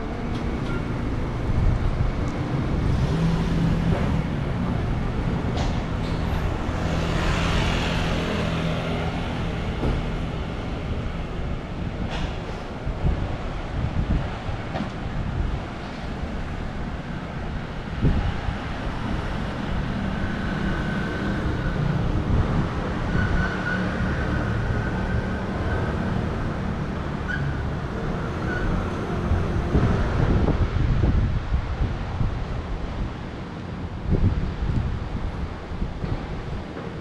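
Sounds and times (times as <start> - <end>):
wind buffeting microphone: 0.0 - 7.2, 9.1 - 23.5, 27.7 - 37.0
street traffic rumble: 0.0 - 37.0
thump: 9.8 - 10.1.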